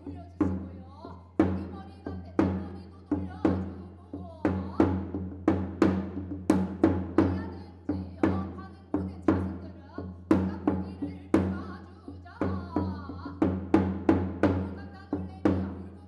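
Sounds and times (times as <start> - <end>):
drum strikes: 4.8 - 7.4.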